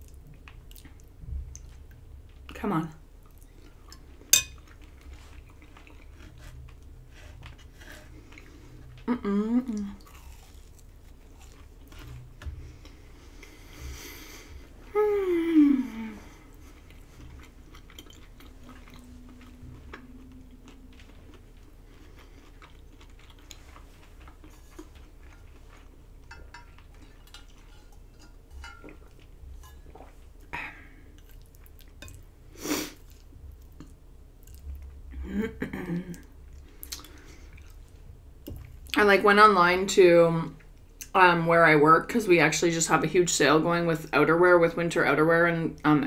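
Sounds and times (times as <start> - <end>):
person chewing: 0.0 - 2.0, 3.2 - 14.6, 15.9 - 35.0, 36.1 - 39.0.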